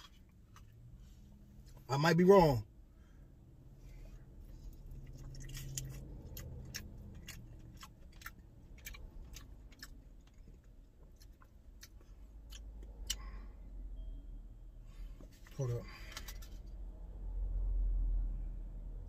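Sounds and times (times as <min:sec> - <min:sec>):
man chewing with wet smacks: 0:04.4 - 0:13.3.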